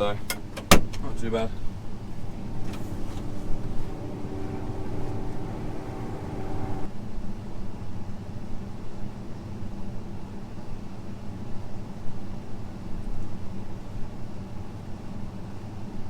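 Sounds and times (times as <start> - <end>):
combine harvester drone: 2.2 - 6.9
steady pitched hum: 2.2 - 6.9.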